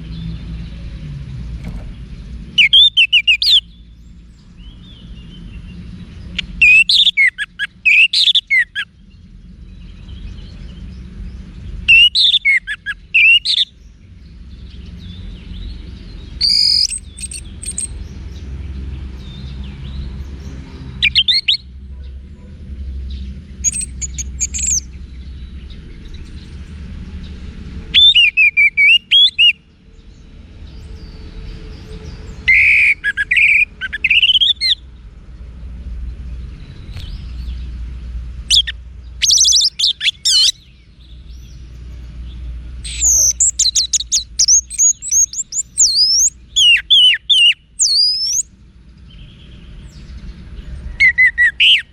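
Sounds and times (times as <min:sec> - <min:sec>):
thrush singing whistled phrases: 0:02.6 - 0:03.7, 0:06.4 - 0:08.9, 0:11.8 - 0:13.7, 0:16.4 - 0:18.0, 0:21.0 - 0:21.7, 0:23.6 - 0:24.9, 0:27.9 - 0:29.6, 0:32.4 - 0:34.8, 0:38.5 - 0:40.6, 0:42.8 - 0:48.5, 0:51.0 - 0:51.9.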